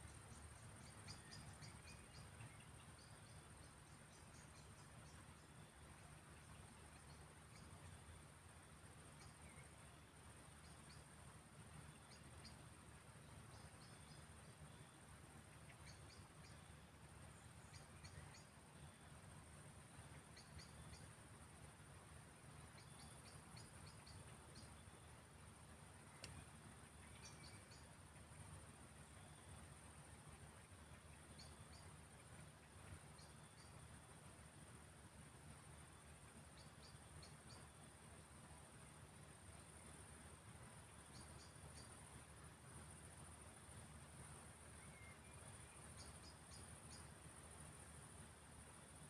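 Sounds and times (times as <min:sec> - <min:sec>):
small bird chirping: 0:00.0 - 0:08.2, 0:09.1 - 0:09.8, 0:13.2 - 0:19.1, 0:19.9 - 0:21.2, 0:22.6 - 0:25.1, 0:26.0 - 0:28.4, 0:30.3 - 0:34.2, 0:35.9 - 0:38.2, 0:40.8 - 0:42.4, 0:44.8 - 0:47.8
crickets trilling: 0:26.0 - 0:49.0.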